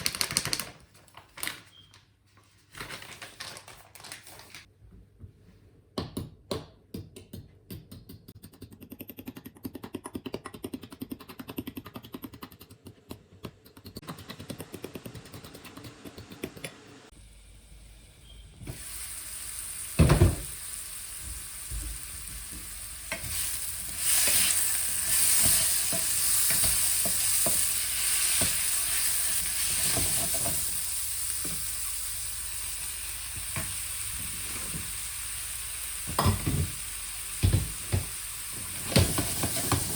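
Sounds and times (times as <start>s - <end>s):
food sizzling in a pan: 17.2s - 39.9s.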